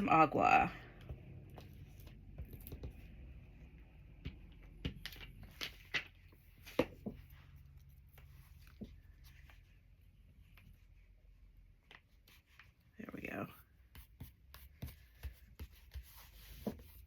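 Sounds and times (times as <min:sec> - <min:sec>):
paper cutouts rustling: 0:01.0 - 0:17.0.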